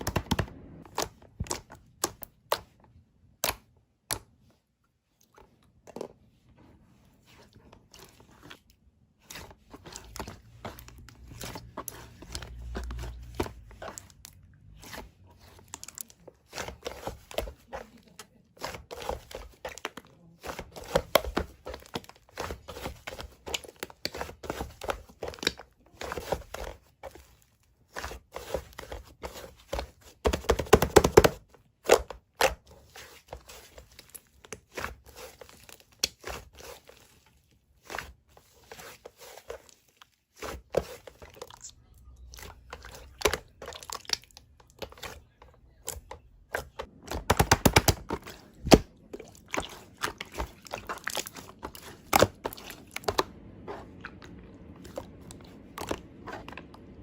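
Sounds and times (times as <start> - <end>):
crunching and crinkling: 5.1 - 57.0.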